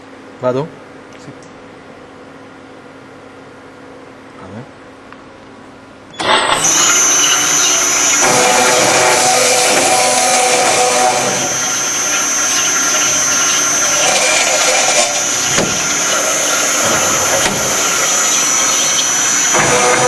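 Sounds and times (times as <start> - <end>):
circular saw cutting metal: 6.2 - 20.0.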